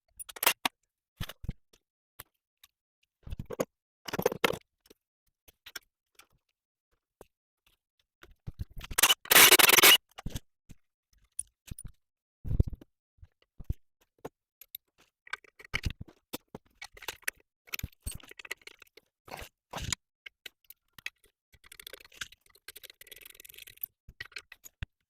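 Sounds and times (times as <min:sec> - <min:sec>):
ratcheting and scraping: 0:08.8 - 0:10.0, 0:16.8 - 0:24.9.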